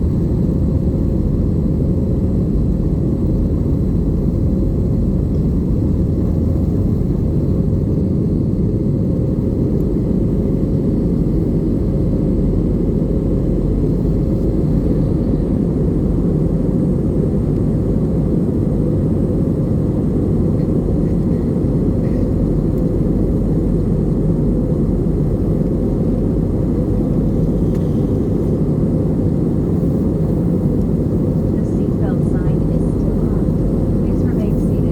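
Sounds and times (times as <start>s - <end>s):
airliner cabin drone: 0.0s - 34.9s
faint steady hum: 19.4s - 34.9s.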